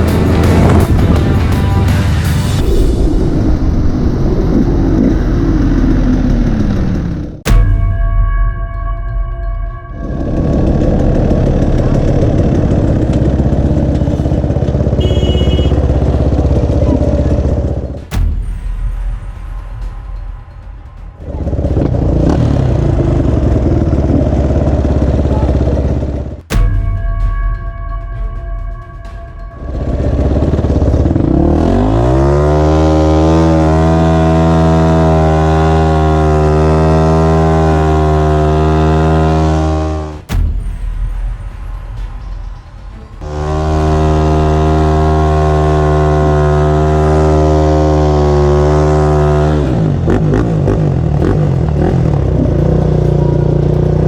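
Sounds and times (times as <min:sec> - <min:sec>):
motorcycle engine running: 0:00.0 - 0:03.2, 0:09.9 - 0:18.2, 0:21.2 - 0:26.4, 0:29.6 - 0:40.3, 0:43.2 - 0:54.0
sharp knock: 0:07.4 - 0:24.1, 0:26.4 - 0:32.3, 0:38.7 - 0:45.8
brief high tone: 0:13.9 - 0:17.3.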